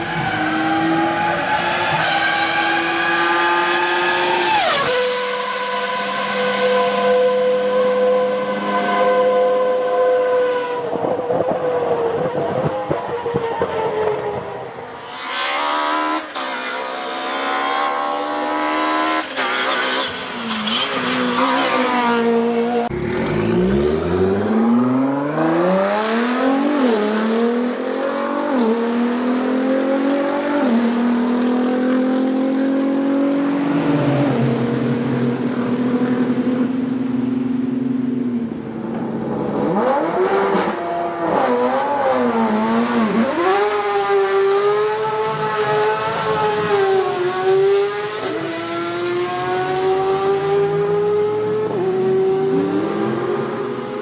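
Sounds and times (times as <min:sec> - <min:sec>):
car engine accelerating hard: 0:21.4 - 0:37.8, 0:38.4 - 0:54.0.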